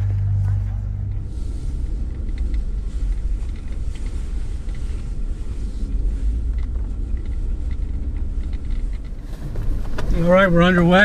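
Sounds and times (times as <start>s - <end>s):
car engine and road noise: 0.0s - 11.0s
faint light ticks: 2.1s - 10.2s.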